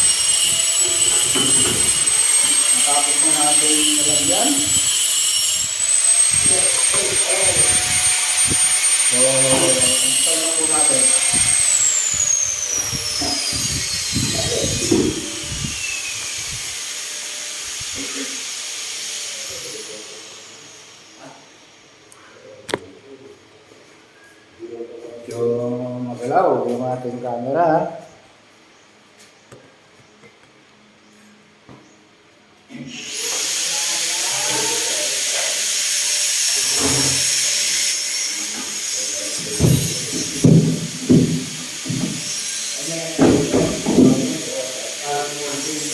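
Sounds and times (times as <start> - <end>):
power drill whine: 0.0 - 22.2, 32.8 - 45.9
knocks: 39.6 - 42.2.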